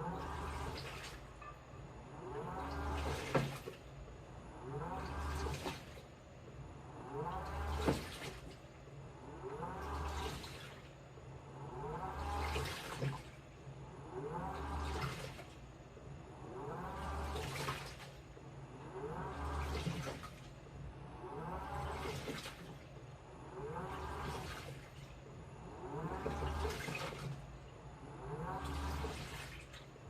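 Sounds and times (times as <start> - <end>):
washing machine motor whining: 0.0 - 30.0
water sloshing: 0.1 - 3.9, 4.7 - 6.1, 7.0 - 8.8, 9.6 - 11.0, 11.8 - 13.5, 14.2 - 15.6, 16.6 - 18.3, 18.9 - 20.6, 21.2 - 30.0.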